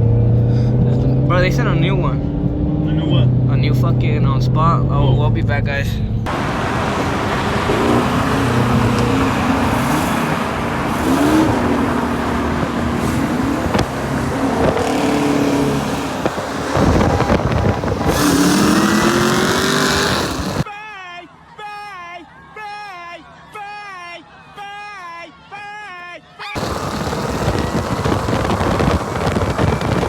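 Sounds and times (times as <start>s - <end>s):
car engine accelerating through gears: 0.0s - 3.7s, 6.2s - 20.6s, 26.6s - 30.0s
road and wind noise: 0.0s - 20.7s, 26.6s - 30.0s.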